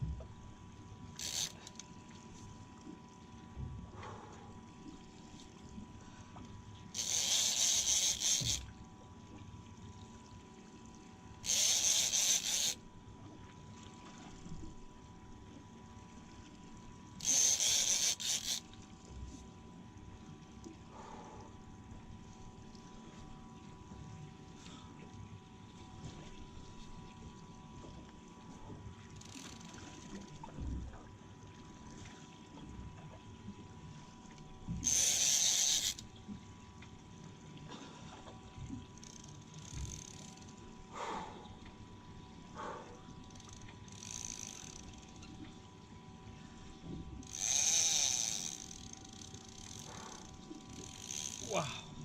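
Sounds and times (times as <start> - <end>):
faint steady hum: 0.0 - 52.0
fishing reel ratcheting click: 1.1 - 2.0, 6.9 - 8.7, 11.4 - 12.8, 17.2 - 18.7, 29.2 - 30.4, 34.8 - 36.1, 39.0 - 40.5, 43.3 - 45.4, 47.2 - 51.6.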